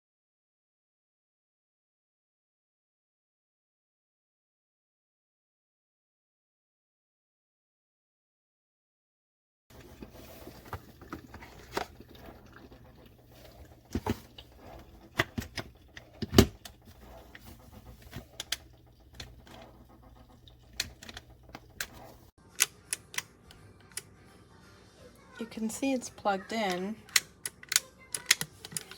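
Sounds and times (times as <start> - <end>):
low steady hum: 9.7 - 22.3
objects being handled clicking: 10.6 - 24.1, 26.6 - 28.9.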